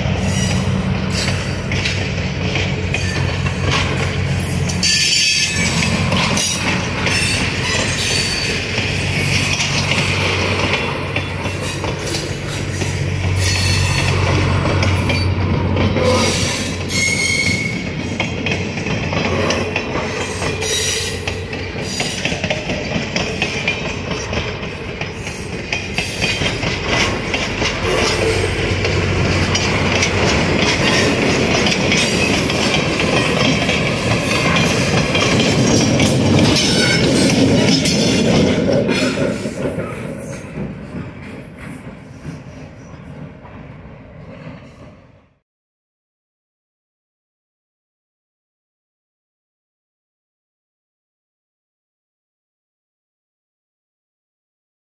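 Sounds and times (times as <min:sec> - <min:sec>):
high wheel squeal: 0:00.2 - 0:01.8, 0:02.8 - 0:10.4, 0:11.2 - 0:18.2, 0:34.1 - 0:38.3
wheels clicking over rail joints: 0:00.4 - 0:43.7.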